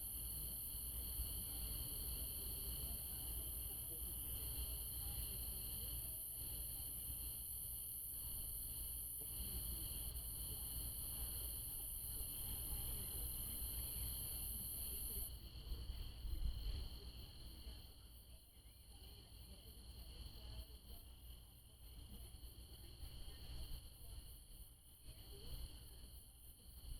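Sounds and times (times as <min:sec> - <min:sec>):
high-pitched cricket trill: 0:00.0 - 0:26.9
lower cricket trills: 0:00.0 - 0:26.9.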